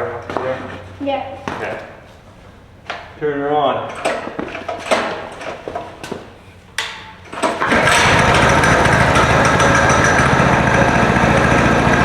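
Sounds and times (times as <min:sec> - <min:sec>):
small gas engine running: 0:07.5 - 0:12.0.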